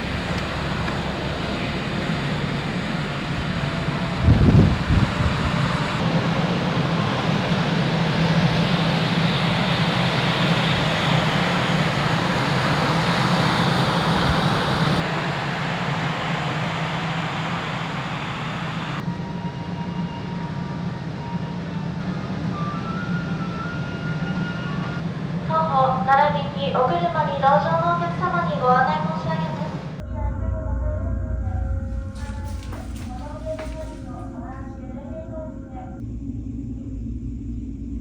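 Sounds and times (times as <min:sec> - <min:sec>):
broad rushing noise: 0:00.0 - 0:19.1
low machinery drone: 0:00.0 - 0:38.0.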